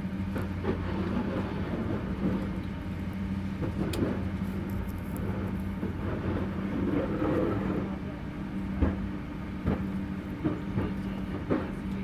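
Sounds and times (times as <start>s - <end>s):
low aircraft hum: 0.0s - 12.0s.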